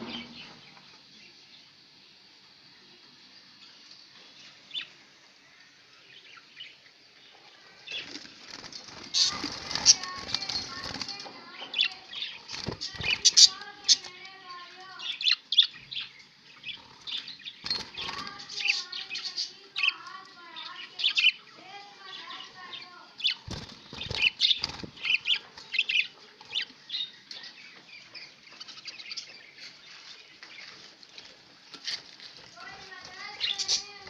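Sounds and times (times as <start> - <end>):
wings flapping: 7.9 - 11.3, 12.2 - 14.1, 17.0 - 18.5, 23.4 - 25.9
budgies chattering: 7.9 - 30.8, 32.6 - 34.0.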